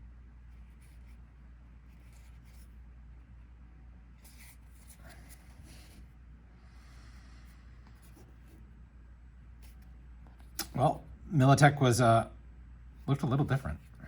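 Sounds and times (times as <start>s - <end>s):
steady low hum: 0.0s - 14.0s
trading cards brushing and sliding: 0.5s - 2.9s, 4.2s - 6.1s.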